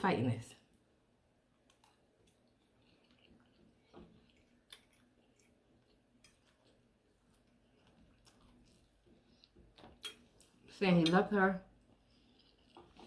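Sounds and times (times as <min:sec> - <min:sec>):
chewing and mouth clicks: 0:01.6 - 0:10.7, 0:11.8 - 0:13.0.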